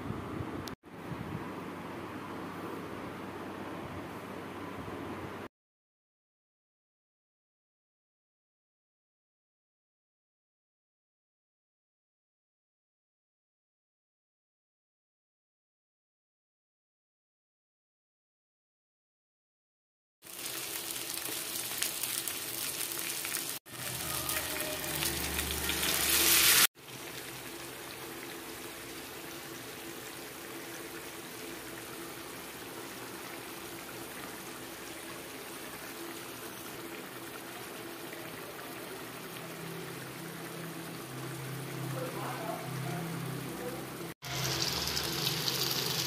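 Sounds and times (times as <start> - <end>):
fish sizzling in oil: 20.2 - 39.4, 44.2 - 46.0.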